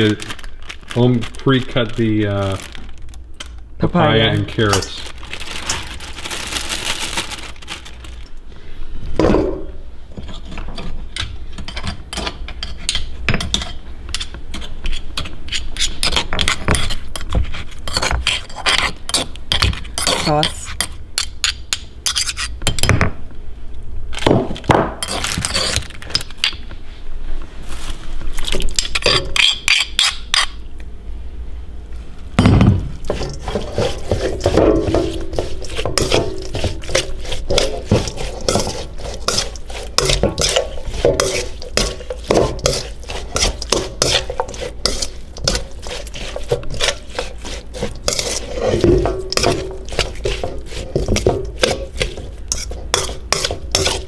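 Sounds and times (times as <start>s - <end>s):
pestle knocking in a mortar: 32.4s - 54.0s.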